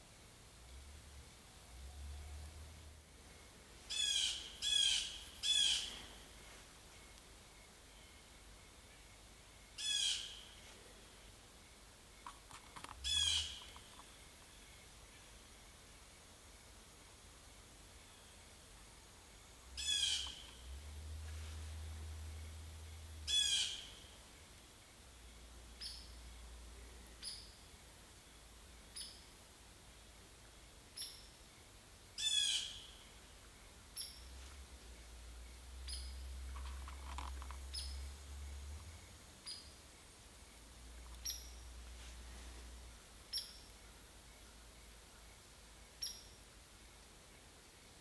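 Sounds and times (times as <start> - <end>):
loud harsh bird calls: 3.9 - 6.2, 13.0 - 13.9, 19.8 - 20.6, 23.3 - 24.0.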